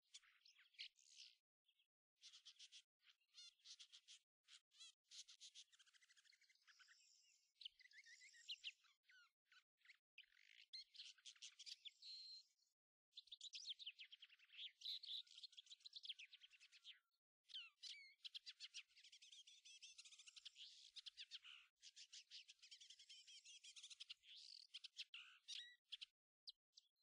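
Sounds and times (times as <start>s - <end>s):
songbirds chirping and trilling: 0.0s - 27.0s.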